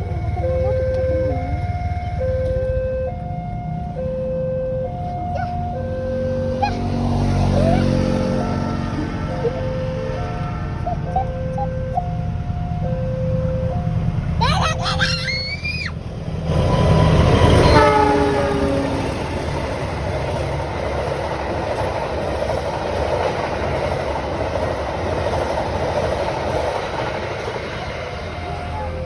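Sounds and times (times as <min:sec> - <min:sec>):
train wagons clattering on rails: 0:14.1 - 0:29.0
train horn: 0:16.6 - 0:19.5.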